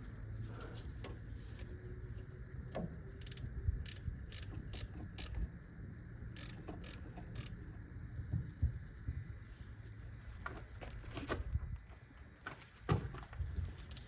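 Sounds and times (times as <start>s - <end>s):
ratchet wrench clicking: 3.1s - 5.6s, 6.3s - 7.7s.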